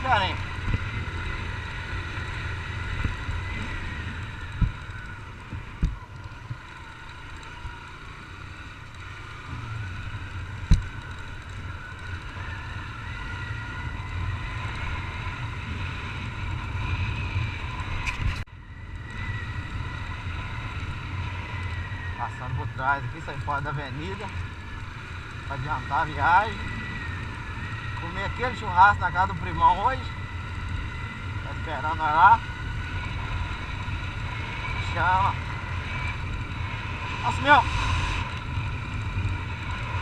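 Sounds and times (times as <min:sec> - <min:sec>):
wind noise on microphone: 0:00.0 - 0:06.6
motorcycle engine running: 0:00.0 - 0:40.0.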